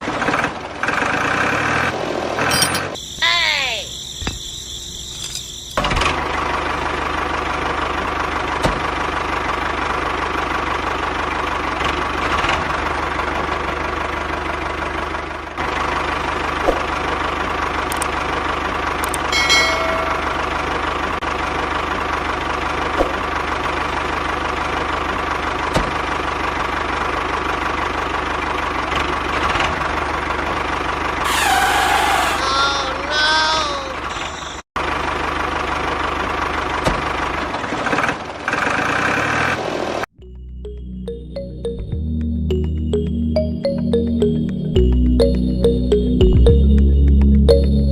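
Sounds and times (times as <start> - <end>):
small tractor engine running: 0.0 - 3.2, 4.1 - 40.1.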